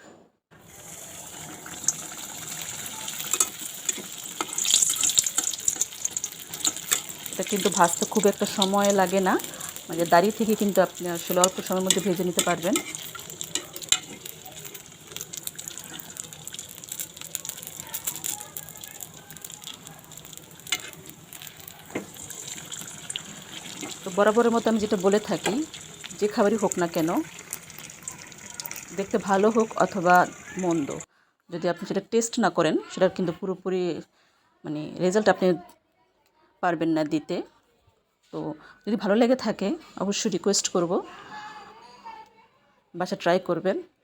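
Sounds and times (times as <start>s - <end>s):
crackles and pops of frying: 0.6s - 31.1s
food sizzling in oil: 0.6s - 31.1s.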